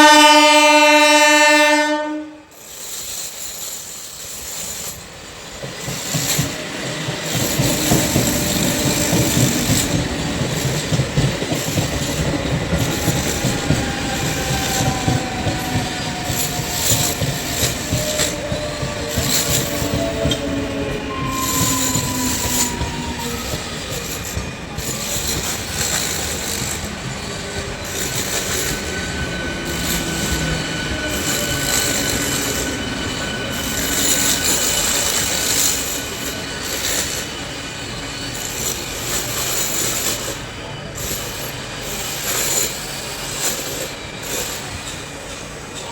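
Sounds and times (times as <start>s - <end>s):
train wheels rumbling on rails: 0.0s - 45.9s
thin squealing tones: 11.6s - 35.7s.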